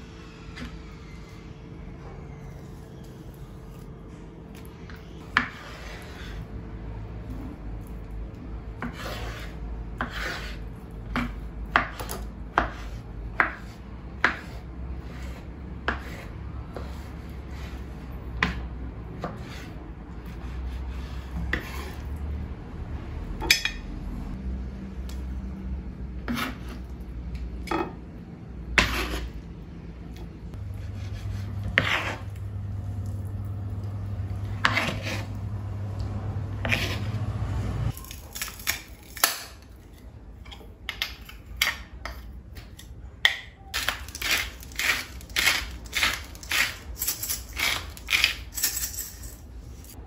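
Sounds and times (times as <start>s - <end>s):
steady low hum: 0.0s - 38.0s
utensils scraping and clinking dishes: 43.8s - 50.0s.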